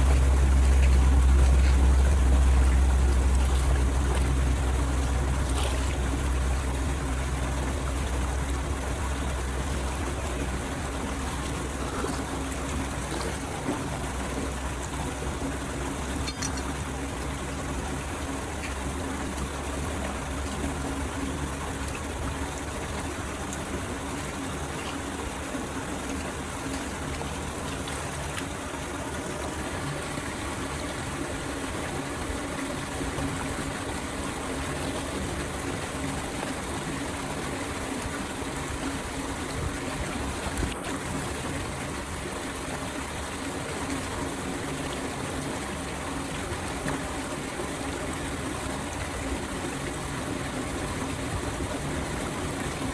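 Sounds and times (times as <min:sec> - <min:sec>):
water pouring into a drain: 0:00.0 - 0:52.9.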